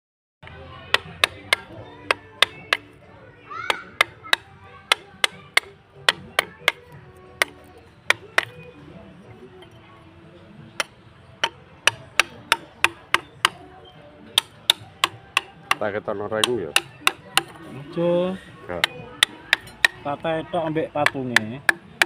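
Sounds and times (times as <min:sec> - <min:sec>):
mallet striking wood chisel: 0:00.9 - 0:03.0, 0:03.7 - 0:08.6, 0:10.7 - 0:17.7, 0:18.7 - 0:22.0.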